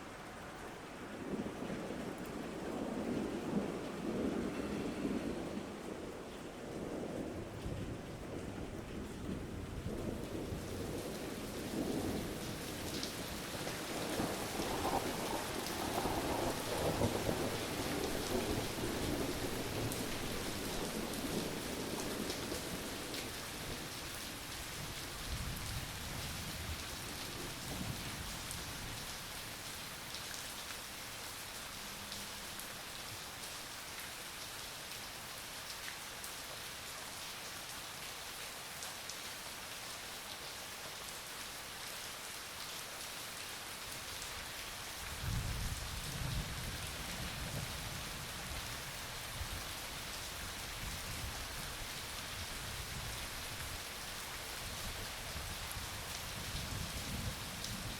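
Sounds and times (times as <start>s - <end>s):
steady rain falling: 0.0s - 57.9s
thunder rumbling: 1.2s - 23.2s.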